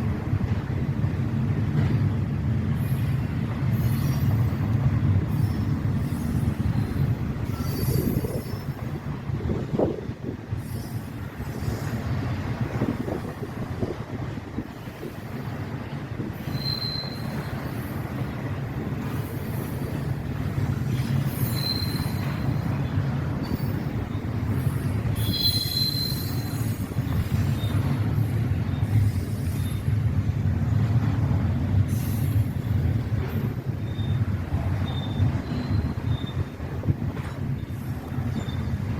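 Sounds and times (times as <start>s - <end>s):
freight train rumbling past: 0.0s - 38.9s
train wheel squeals: 2.7s - 9.2s, 10.5s - 13.5s, 16.3s - 30.1s, 31.8s - 38.9s.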